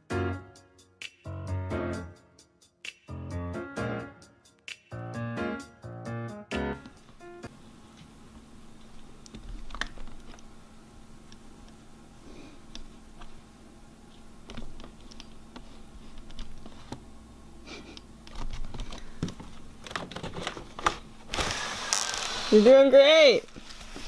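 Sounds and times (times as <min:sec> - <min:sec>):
faint steady hum: 0:06.8 - 0:24.0.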